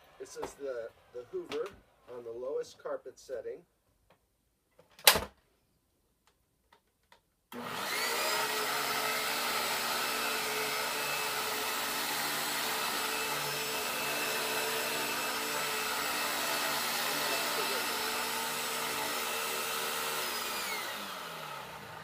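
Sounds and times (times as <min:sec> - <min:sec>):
vacuum cleaner motor whining: 0:07.5 - 0:22.0.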